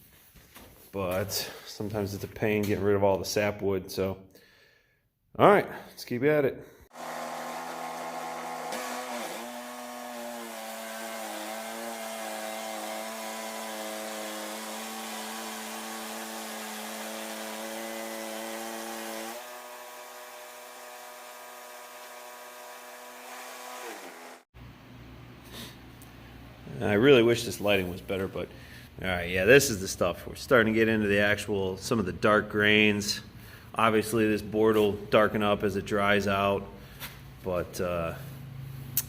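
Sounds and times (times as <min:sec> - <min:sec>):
bandsaw mill sawing log: 0:06.9 - 0:24.5.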